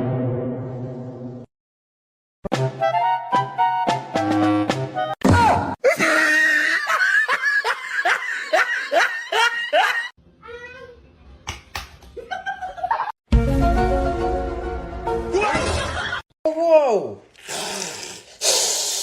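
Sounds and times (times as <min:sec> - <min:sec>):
music: 0:02.4 - 0:05.2, 0:13.3 - 0:15.5
hearty laughter: 0:05.9 - 0:10.1, 0:15.5 - 0:16.2.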